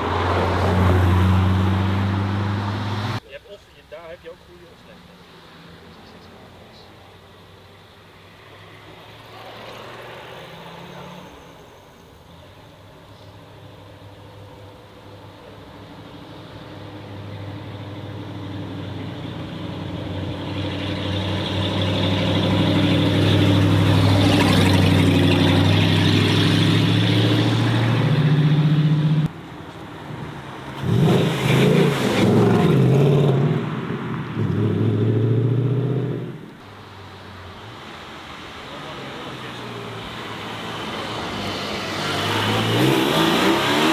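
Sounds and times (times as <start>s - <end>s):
car passing by: 0.0s - 3.2s, 8.2s - 12.2s, 16.8s - 43.9s
car engine revving: 18.8s - 29.4s, 30.1s - 36.6s, 38.9s - 43.9s.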